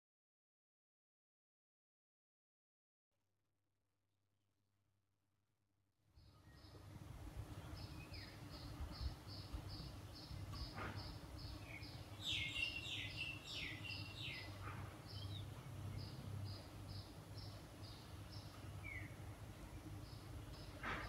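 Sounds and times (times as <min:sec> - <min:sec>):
bird chirping quickly: 0:07.6 - 0:20.8.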